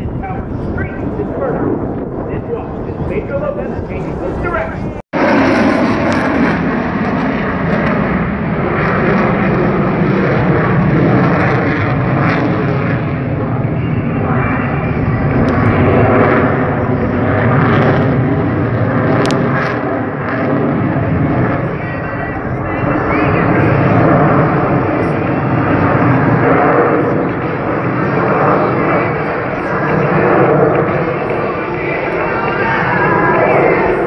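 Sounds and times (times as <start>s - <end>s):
airplane engine in flight: 0.0s - 34.0s.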